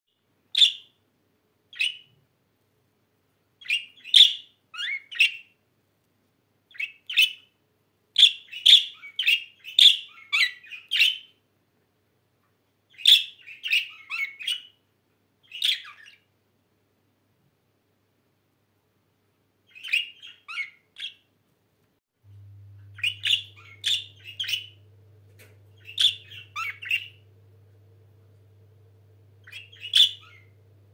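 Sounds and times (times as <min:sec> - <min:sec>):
budgerigars chirping: 0:00.5 - 0:00.9, 0:01.7 - 0:02.1, 0:03.6 - 0:05.5, 0:08.2 - 0:11.3, 0:12.9 - 0:14.8, 0:15.4 - 0:16.2, 0:19.7 - 0:21.2, 0:23.0 - 0:27.3, 0:29.3 - 0:30.7.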